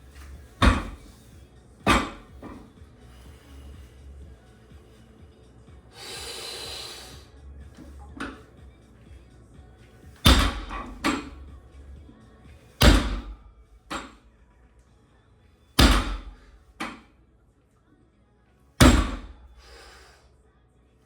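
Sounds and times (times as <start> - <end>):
weights thudding onto floor: 0.6 - 1.2, 1.9 - 2.7, 10.3 - 11.3, 12.8 - 14.1, 18.8 - 19.4.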